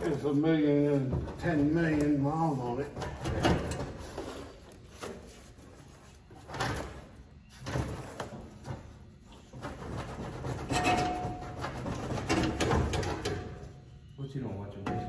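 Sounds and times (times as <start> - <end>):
metal parts scraping and knocking: 9.7 - 13.6.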